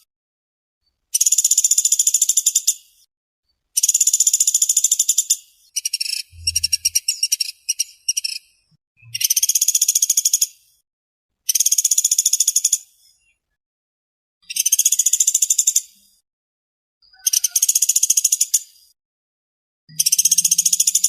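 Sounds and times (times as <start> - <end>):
faint low thud: 6.4 - 7.0
bird giving high trills: 6.4 - 7.3.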